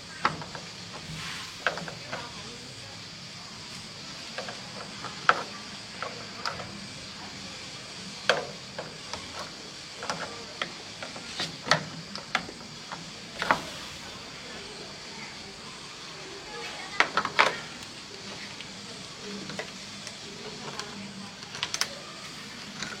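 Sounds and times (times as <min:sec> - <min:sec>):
steady hiss: 0:00.0 - 0:23.0
tools clicking and knocking: 0:00.2 - 0:02.4, 0:04.3 - 0:06.8, 0:08.2 - 0:13.7, 0:19.4 - 0:22.0.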